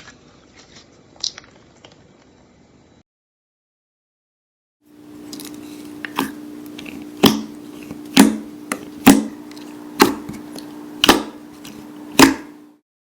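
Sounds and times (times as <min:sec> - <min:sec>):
slime popping: 0:05.2 - 0:12.6.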